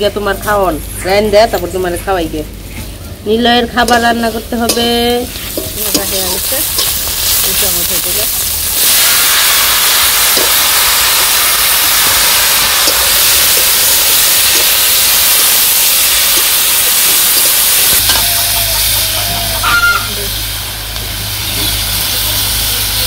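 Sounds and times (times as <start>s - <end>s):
food sizzling in hot oil: 3.8s - 23.0s
metal spatula stirring: 3.9s - 7.7s.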